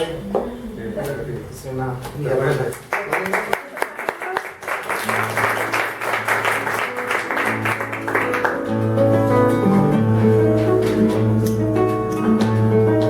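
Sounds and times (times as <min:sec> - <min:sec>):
audience applause: 0:02.8 - 0:08.8
guitar playing: 0:04.9 - 0:13.0.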